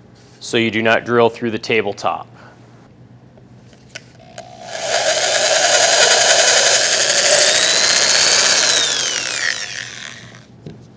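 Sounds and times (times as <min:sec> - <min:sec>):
power drill drilling through wood: 0:04.4 - 0:10.4.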